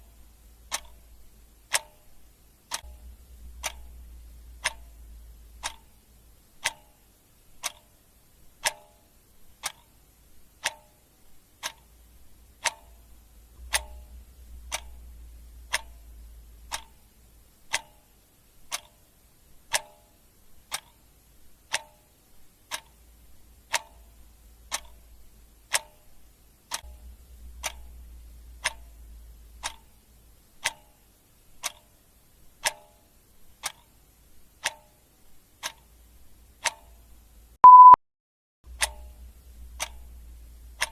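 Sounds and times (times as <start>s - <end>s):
clock ticking: 0.0s - 38.0s, 38.7s - 40.9s.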